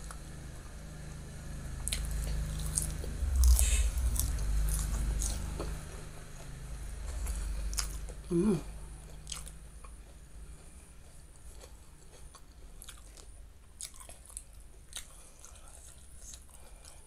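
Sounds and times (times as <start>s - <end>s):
chewing bean sprouts: 1.8s - 8.3s, 9.0s - 17.0s
voice humming: 8.1s - 8.8s.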